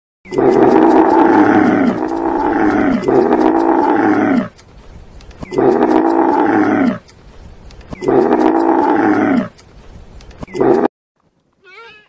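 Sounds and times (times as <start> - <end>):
camel calling: 0.3 - 4.6, 5.4 - 7.1, 7.9 - 9.6.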